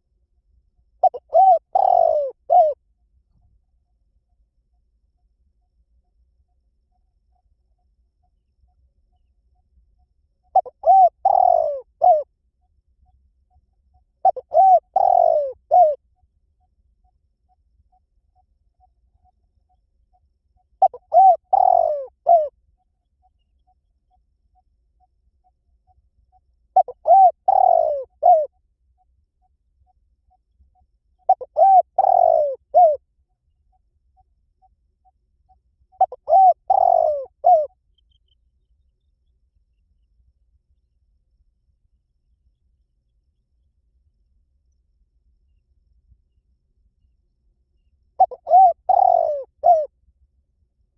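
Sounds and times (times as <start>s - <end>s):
dove cooing: 1.0s - 2.8s, 10.5s - 12.3s, 14.2s - 16.0s, 20.8s - 22.5s, 26.8s - 28.5s, 31.3s - 33.0s, 36.0s - 37.7s, 48.2s - 49.9s.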